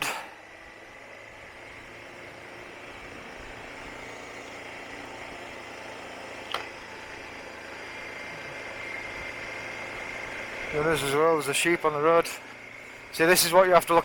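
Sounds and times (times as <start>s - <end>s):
motorcycle engine running: 0.0s - 14.0s
road noise: 0.0s - 14.0s
sharp click: 6.5s - 6.7s.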